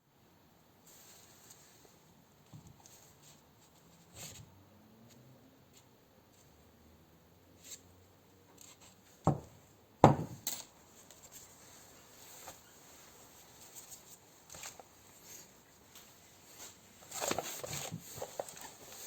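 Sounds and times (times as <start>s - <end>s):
tools being handled and set down: 9.3s - 10.8s.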